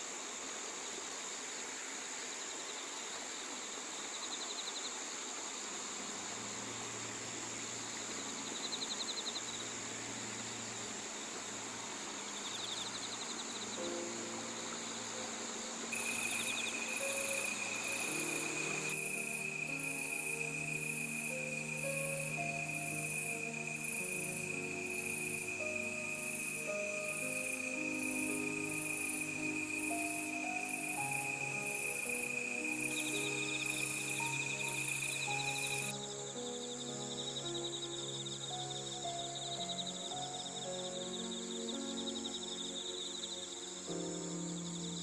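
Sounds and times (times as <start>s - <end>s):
night insects trilling: 0.0s - 45.0s
pulsing high chirp: 15.9s - 35.9s.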